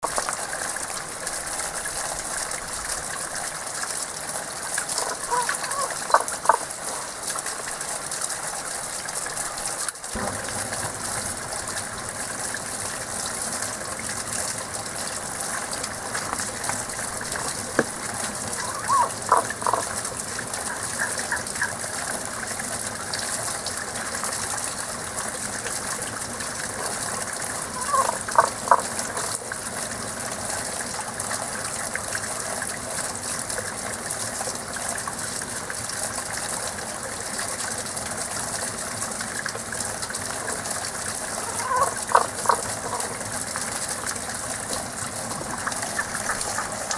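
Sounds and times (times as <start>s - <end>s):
flowing spring water: 0.0s - 46.9s
frogs calling: 5.0s - 7.2s, 16.0s - 21.8s, 27.6s - 29.4s, 41.4s - 43.2s, 45.4s - 46.9s.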